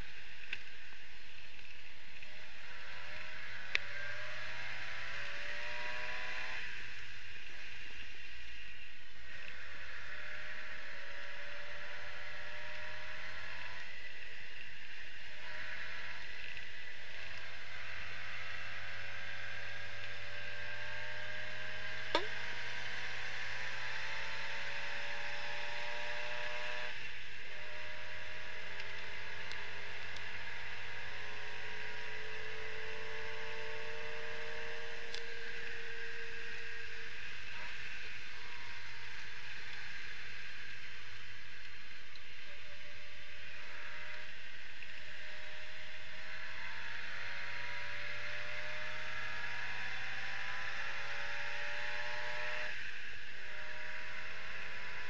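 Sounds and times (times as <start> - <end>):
car engine accelerating: 0.0 - 55.0
sharp click: 22.1 - 22.4.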